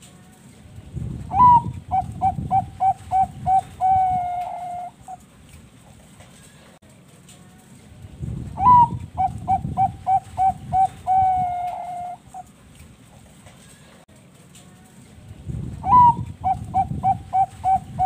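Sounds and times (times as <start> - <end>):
dove cooing: 1.3 - 5.2, 8.6 - 12.5, 15.8 - 18.0.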